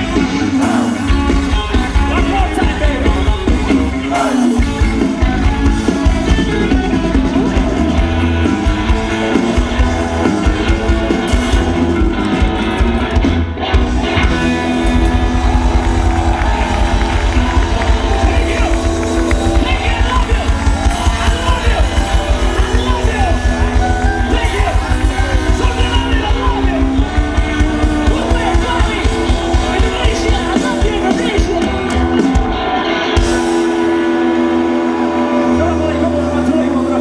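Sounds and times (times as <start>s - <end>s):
person singing: 0.0s - 9.6s
live pop-rock band playing: 0.0s - 37.0s.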